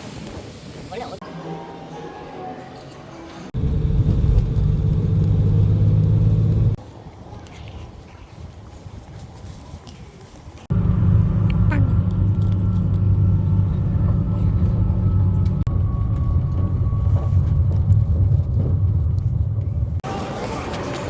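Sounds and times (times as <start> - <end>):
moving vehicle rumble: 3.6 - 6.9, 10.6 - 21.0.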